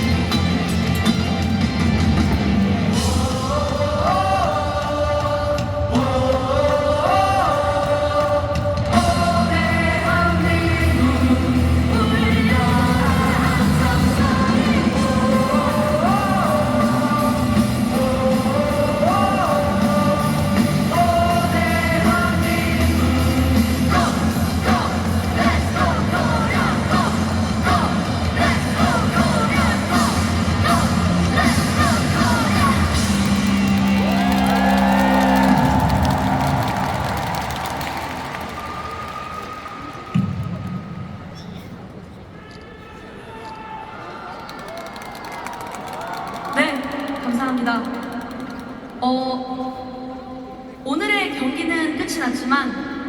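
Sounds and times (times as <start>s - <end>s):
live rock band playing: 0.0s - 3.4s, 10.6s - 34.9s
lead singer singing: 2.9s - 33.4s.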